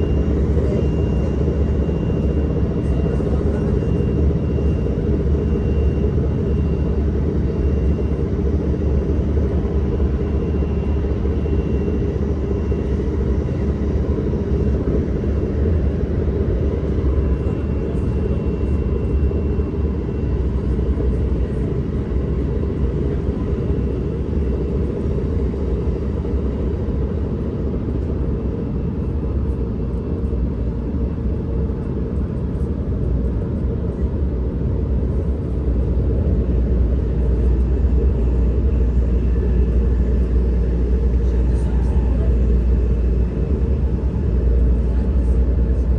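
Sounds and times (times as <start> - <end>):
commuter train rumble: 0.0 - 45.9.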